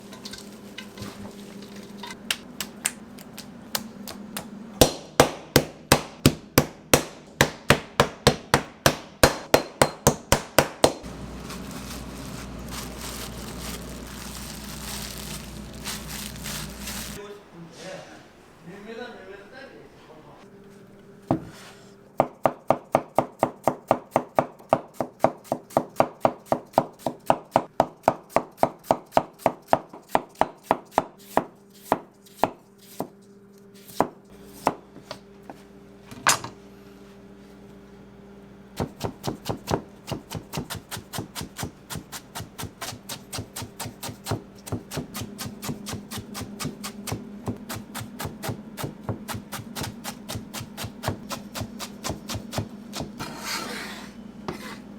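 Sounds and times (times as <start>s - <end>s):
steady low hum: 0.0s - 19.2s
knife strikes on cutting board: 4.8s - 11.0s.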